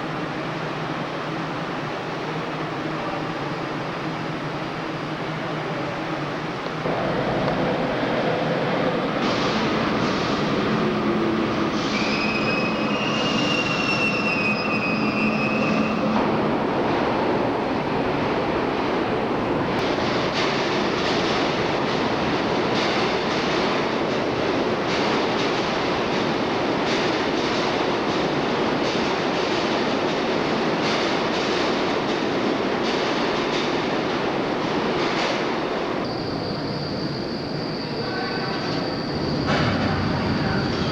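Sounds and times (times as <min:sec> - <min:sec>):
train rumbling: 0:00.0 - 0:40.9
train wheels squealing: 0:11.8 - 0:16.2, 0:36.0 - 0:40.9.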